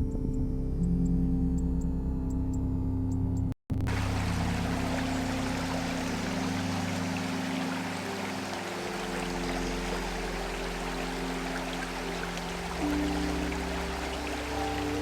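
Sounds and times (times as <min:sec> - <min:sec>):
soft background music: 0:00.0 - 0:15.0
stream water flowing: 0:03.9 - 0:15.0.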